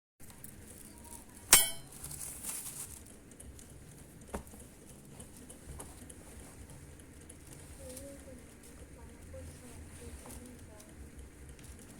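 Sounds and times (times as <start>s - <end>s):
tableware clinking: 1.5s - 2.0s.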